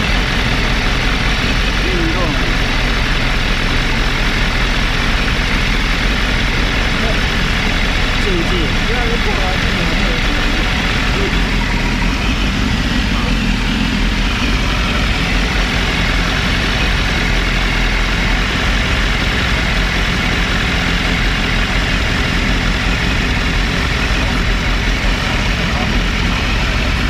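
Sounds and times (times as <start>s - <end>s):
motorcycle engine idling: 0.0s - 27.0s.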